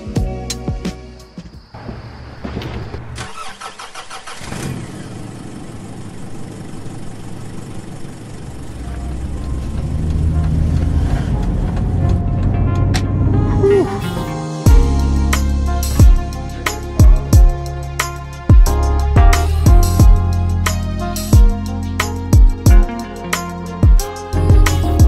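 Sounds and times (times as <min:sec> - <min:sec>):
car engine starting and running: 0:02.9 - 0:14.2.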